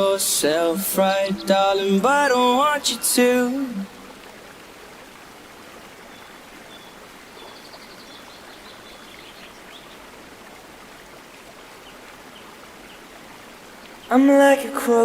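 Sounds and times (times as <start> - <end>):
river water rushing: 0.0 - 15.0
faint high bird chirps: 6.1 - 10.0.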